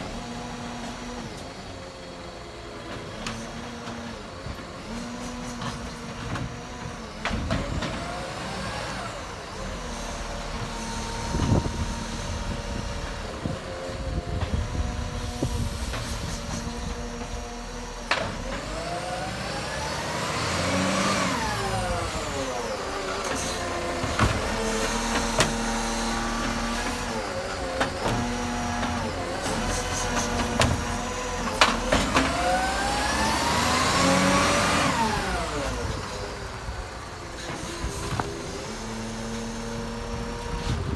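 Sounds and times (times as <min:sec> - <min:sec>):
garbage truck engine running: 0:00.0 - 0:40.9
clanks and knocks: 0:23.2 - 0:32.6.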